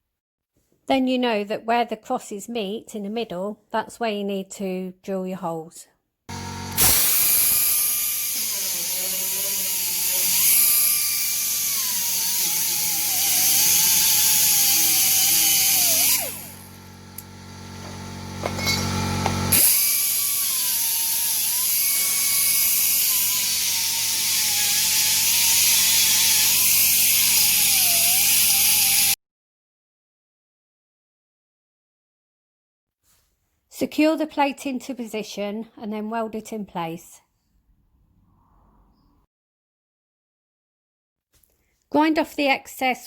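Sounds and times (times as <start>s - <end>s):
electric drill whining: 6.3s - 29.2s.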